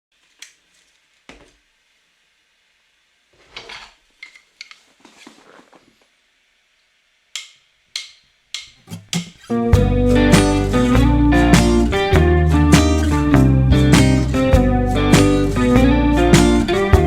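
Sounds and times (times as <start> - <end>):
rustling: 3.3 - 6.2.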